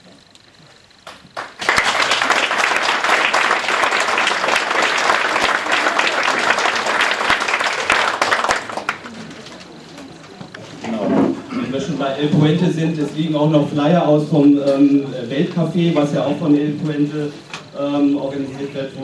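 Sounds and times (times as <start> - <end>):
audience applauding: 1.0 - 10.1.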